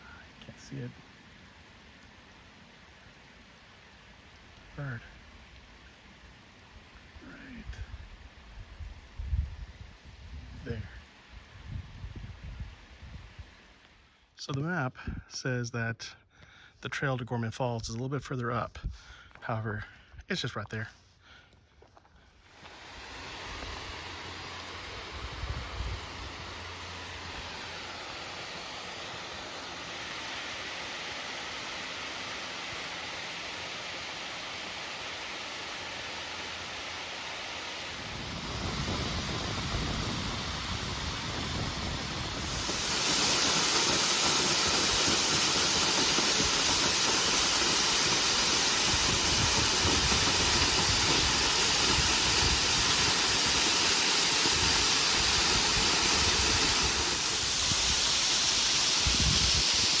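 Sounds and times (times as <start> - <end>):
waterfall rushing: 22.5 - 60.0.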